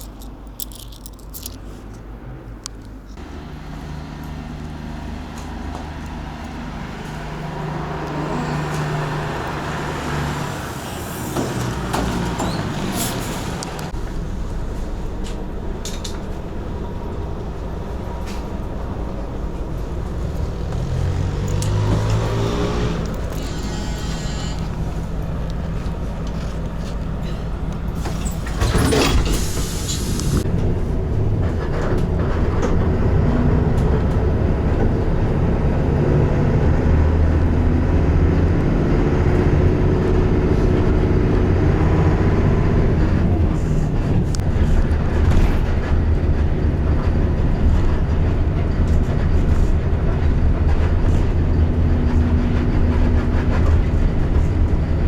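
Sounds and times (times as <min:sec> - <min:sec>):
clatters: 0:00.0 - 0:03.0, 0:18.0 - 0:35.0
road rumble: 0:00.0 - 0:55.0
vehicle engine droning: 0:00.0 - 0:55.0.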